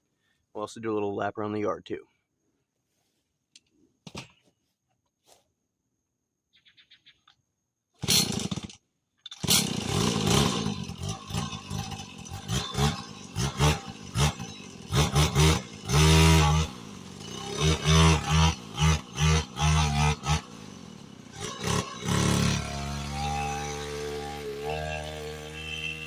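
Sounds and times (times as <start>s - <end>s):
dirt bike engine starting and revving: 8.0s - 26.0s.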